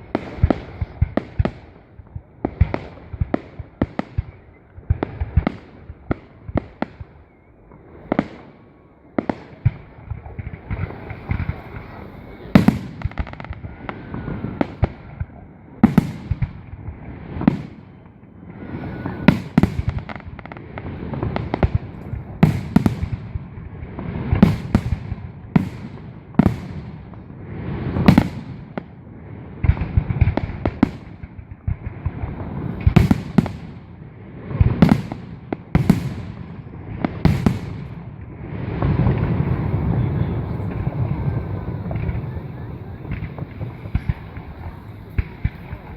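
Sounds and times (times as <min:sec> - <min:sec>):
fireworks bursting with sharp bangs: 0:00.0 - 0:45.9
echoing rumble: 0:36.1 - 0:45.9.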